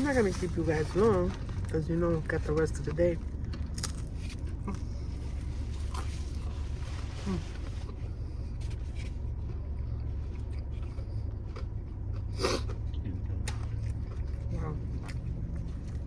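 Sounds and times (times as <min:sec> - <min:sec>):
food wrappers rustling: 0:00.0 - 0:09.1
car engine idling: 0:00.0 - 0:12.1.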